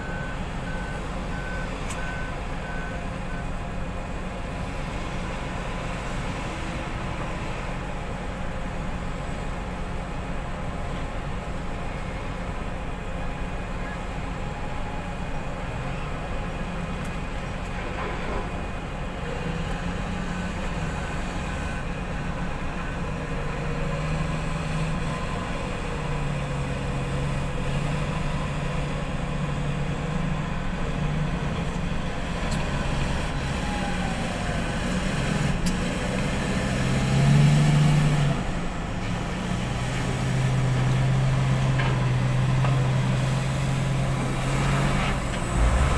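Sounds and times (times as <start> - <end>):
diesel engine revving: 12.8 - 45.9.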